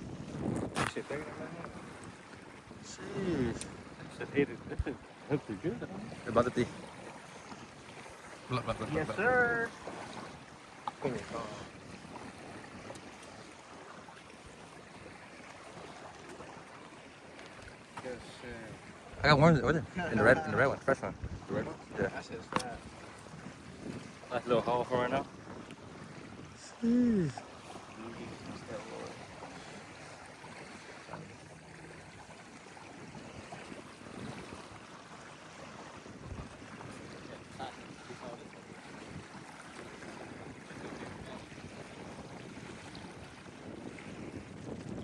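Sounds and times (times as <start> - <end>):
wind noise: 0.0 - 2.1, 19.1 - 27.3, 35.8 - 45.0
water: 0.0 - 45.0
wind: 0.0 - 45.0.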